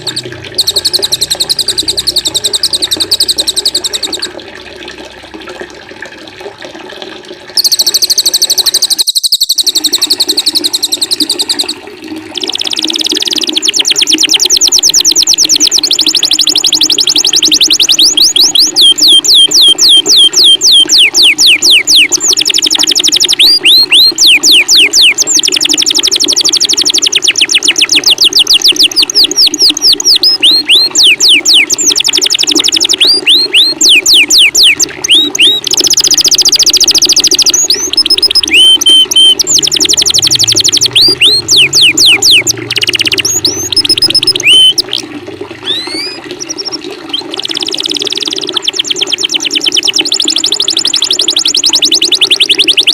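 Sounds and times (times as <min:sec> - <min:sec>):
songbird trilling: 0:00.0 - 0:04.3, 0:07.6 - 0:11.8, 0:12.4 - 0:26.1, 0:26.7 - 0:44.9, 0:45.6 - 0:46.6
running water: 0:00.0 - 0:52.9.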